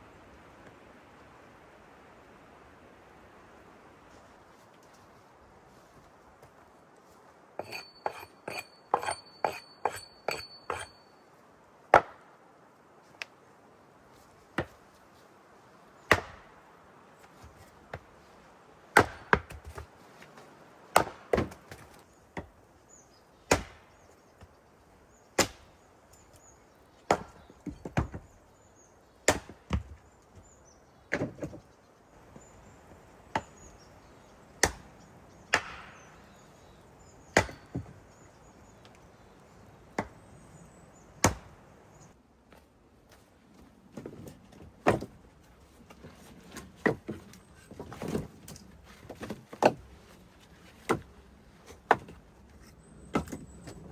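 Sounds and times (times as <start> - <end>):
axe chopping wood: 11.9 - 12.2, 16.1 - 16.5, 18.9 - 19.8, 20.9 - 22.5, 23.5 - 23.9, 25.4 - 25.7, 27.1 - 28.2, 29.2 - 30.0, 33.3 - 33.6, 34.6 - 34.9, 35.5 - 36.2, 37.3 - 38.0, 40.0 - 40.2, 41.2 - 41.6.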